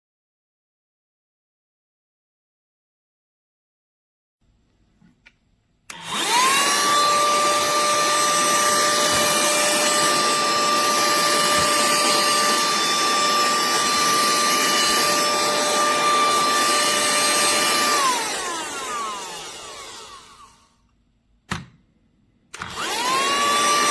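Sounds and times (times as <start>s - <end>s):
handheld vacuum motor whirring: 5.9s - 20.9s, 22.5s - 23.9s.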